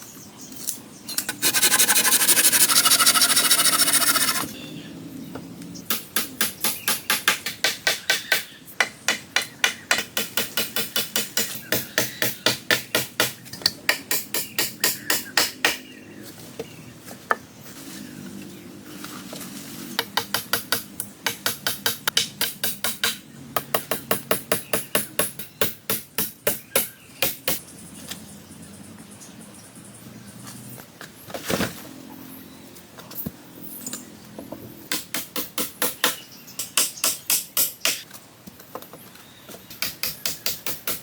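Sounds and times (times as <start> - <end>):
hand tool striking wood: 1.3 - 4.5.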